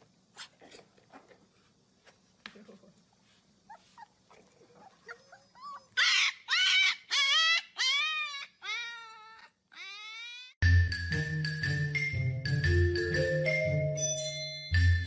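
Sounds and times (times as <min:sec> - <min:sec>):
dog whining: 0:03.7 - 0:10.6.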